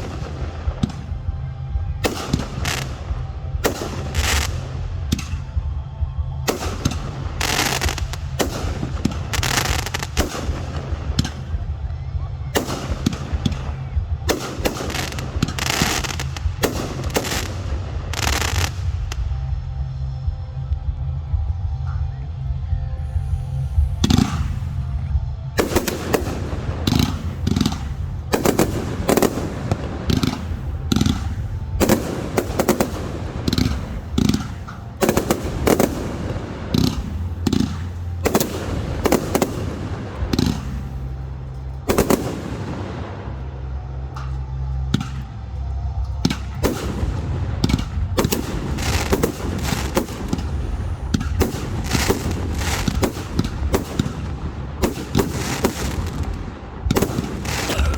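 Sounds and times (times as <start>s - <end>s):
fireworks exploding: 0.0s - 21.0s, 23.4s - 57.9s.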